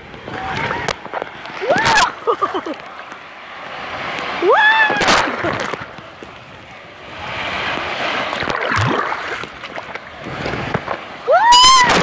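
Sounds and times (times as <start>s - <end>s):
sea waves breaking: 0.0s - 12.0s
sharp splash: 4.4s - 5.9s, 7.8s - 12.0s.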